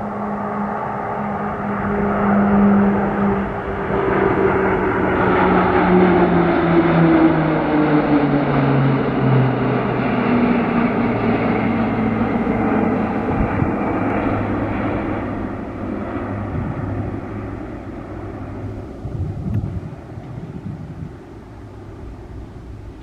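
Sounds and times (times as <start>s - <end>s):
propeller aircraft flying past: 0.0s - 23.0s.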